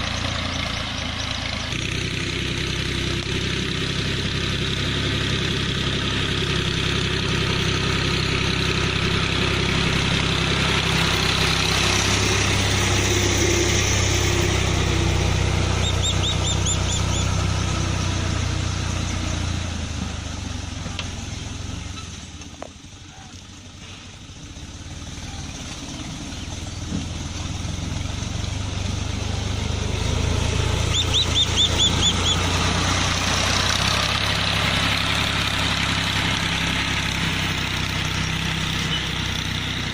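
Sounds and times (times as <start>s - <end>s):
farm machine engine running: 0.0s - 39.9s
quick high chirps: 15.8s - 17.3s, 30.9s - 32.5s.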